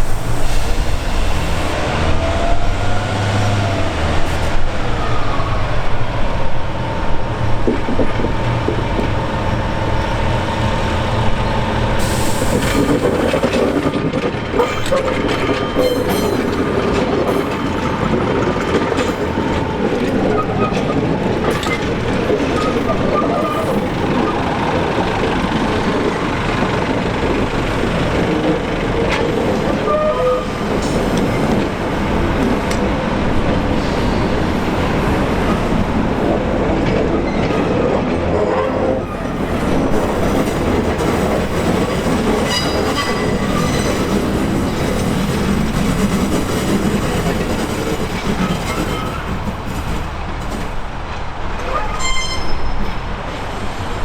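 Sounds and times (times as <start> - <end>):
train rumbling on rails: 0.0 - 54.0
train wheels clicking: 7.4 - 54.0
high wheel squeals: 14.6 - 18.1, 29.4 - 31.6, 41.8 - 45.3, 51.6 - 53.1.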